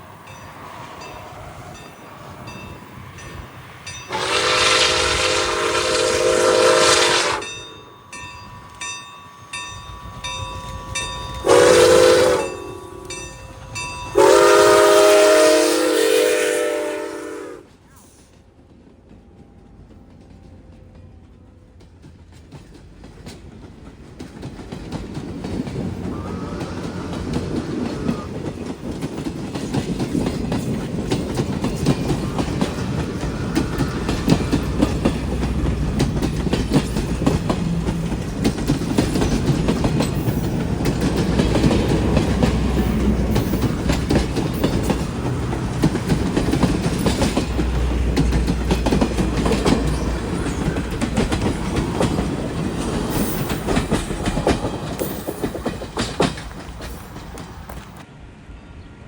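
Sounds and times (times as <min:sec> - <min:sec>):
freight train rumbling past: 0:00.0 - 0:59.0
wheels clicking over rail joints: 0:17.8 - 0:58.1.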